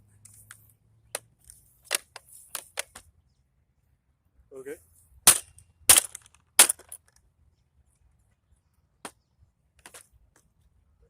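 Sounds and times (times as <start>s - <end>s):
hammer striking scrap metal: 5.3s - 6.9s.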